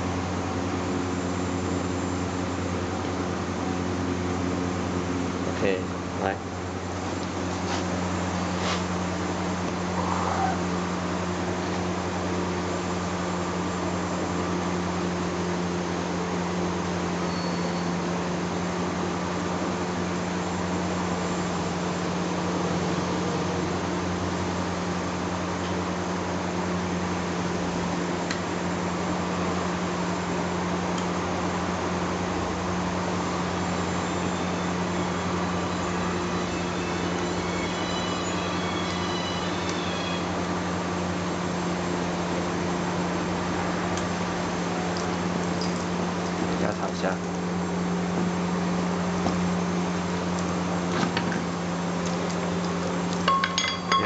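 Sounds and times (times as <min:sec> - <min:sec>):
steady mechanical hum: 0:00.0 - 0:54.0.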